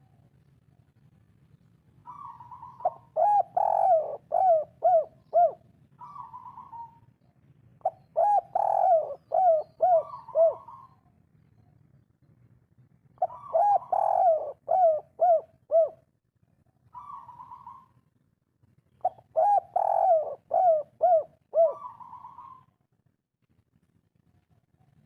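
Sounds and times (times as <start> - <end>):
dove cooing: 2.0 - 7.1, 7.8 - 11.1, 13.2 - 16.1, 16.9 - 18.0, 19.0 - 22.8.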